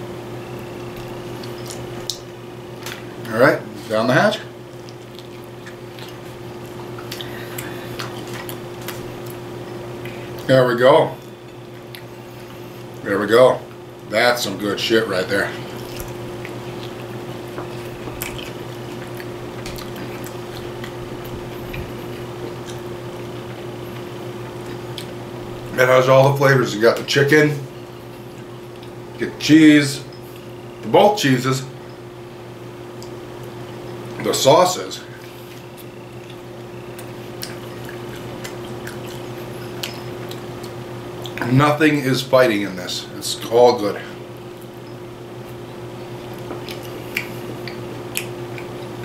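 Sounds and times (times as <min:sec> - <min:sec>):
steady low hum: 0:00.0 - 0:49.0
person chewing food: 0:00.6 - 0:03.3, 0:04.7 - 0:10.5, 0:11.2 - 0:13.0, 0:15.5 - 0:25.7, 0:27.8 - 0:29.2, 0:35.2 - 0:41.4, 0:44.3 - 0:49.0
wet mouth clicks and smacks: 0:01.0 - 0:03.0, 0:04.8 - 0:06.2, 0:15.8 - 0:21.0, 0:24.6 - 0:25.2, 0:35.8 - 0:41.5, 0:46.3 - 0:49.0.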